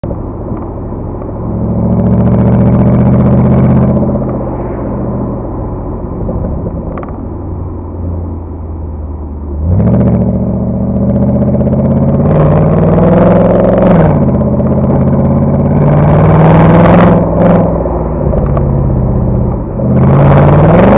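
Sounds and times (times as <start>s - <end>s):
car exhaust idling and revving: 0.0s - 20.9s.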